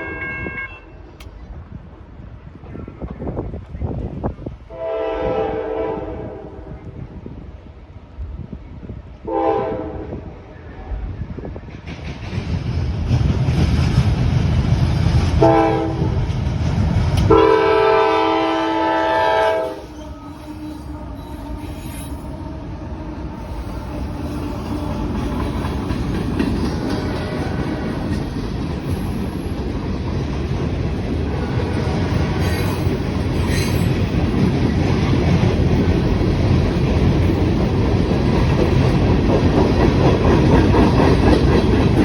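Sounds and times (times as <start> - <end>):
diesel locomotive horn: 0.0 - 1.1, 4.7 - 7.0, 9.2 - 11.2, 15.4 - 16.2, 17.2 - 25.6, 26.9 - 28.1
locomotive rumble: 0.9 - 42.0
freight cars clickety-clack: 11.5 - 17.8, 22.2 - 42.0.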